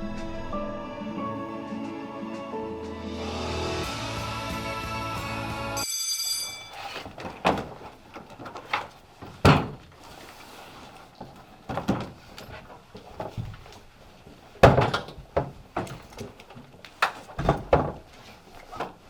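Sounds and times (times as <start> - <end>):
irregular knocks and thuds: 7.2 - 10.0, 11.2 - 16.4, 17.1 - 19.0.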